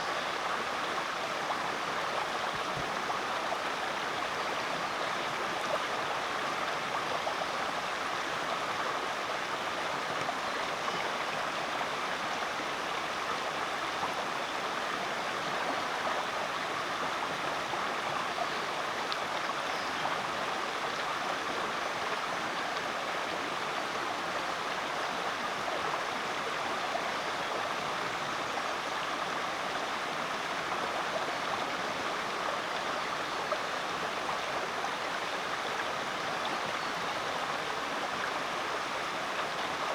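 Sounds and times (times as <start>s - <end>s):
creek flowing over rocks: 0.0s - 39.9s.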